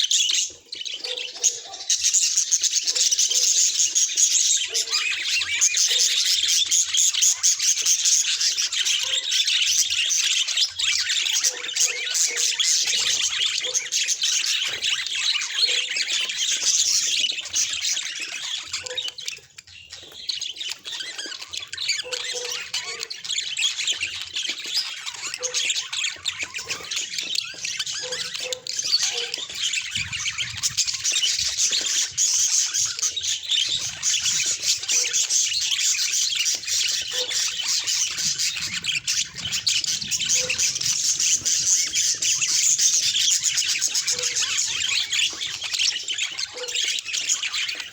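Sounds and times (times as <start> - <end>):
budgerigars chattering: 0.0 - 47.9.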